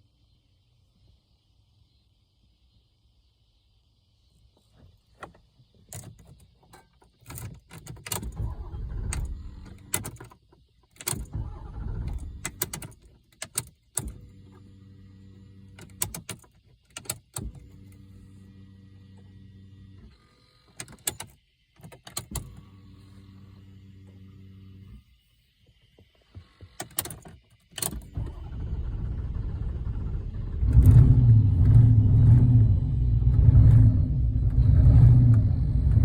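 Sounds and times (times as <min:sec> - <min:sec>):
starter motor whirring: 0:08.2 - 0:10.1, 0:11.1 - 0:12.7, 0:27.8 - 0:36.0.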